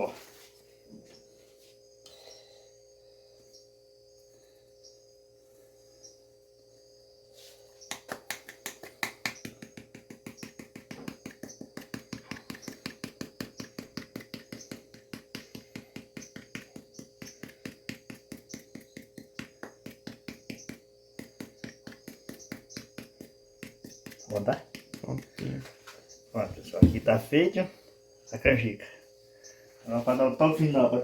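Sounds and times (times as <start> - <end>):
faint steady hum: 0.0 - 31.0
rapid light tapping: 7.8 - 27.4.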